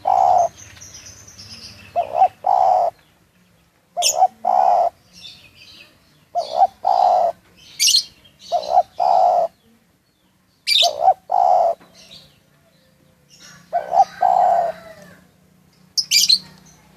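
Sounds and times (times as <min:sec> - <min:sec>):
dove cooing: 0:00.0 - 0:00.6, 0:01.4 - 0:03.0, 0:04.0 - 0:05.2, 0:06.3 - 0:09.7, 0:10.7 - 0:12.7, 0:13.4 - 0:15.3
small bird high chirps: 0:00.0 - 0:03.2, 0:04.0 - 0:15.2, 0:15.8 - 0:16.9.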